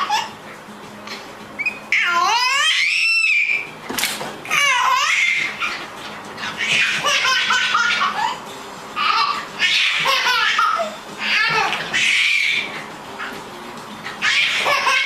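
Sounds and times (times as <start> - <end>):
high-pitched laughter: 6.6 - 8.4, 9.0 - 12.6, 14.2 - 15.0.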